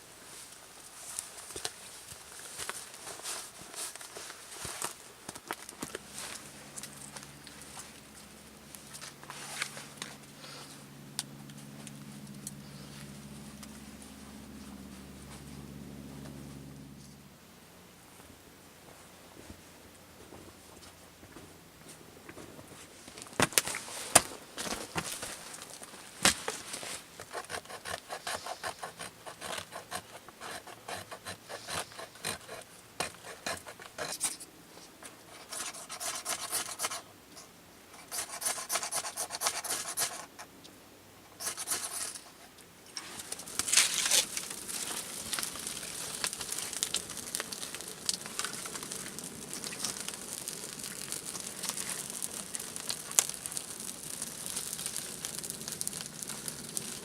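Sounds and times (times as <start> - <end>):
steady scraping: 24.7 - 40.5, 41.3 - 57.0
rasping strokes on wood: 27.2 - 34.4, 35.4 - 37.1, 38.1 - 40.3, 41.4 - 42.4.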